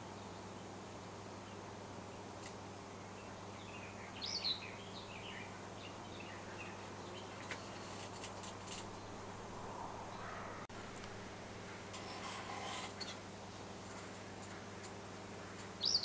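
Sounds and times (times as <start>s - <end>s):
steady low hum: 0.0s - 15.9s
songbird warbling: 8.8s - 10.7s, 15.8s - 16.0s.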